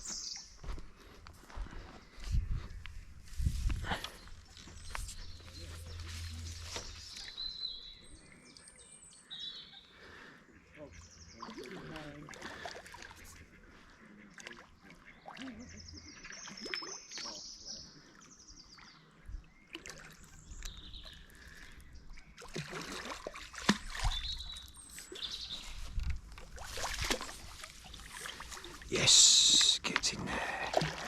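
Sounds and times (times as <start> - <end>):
small birds chirping: 0.0 - 22.7, 23.4 - 30.9.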